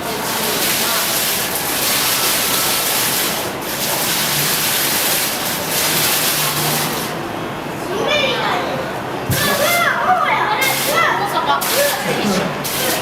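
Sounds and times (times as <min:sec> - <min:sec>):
fountain water splashing: 0:00.0 - 0:07.6, 0:09.3 - 0:13.0.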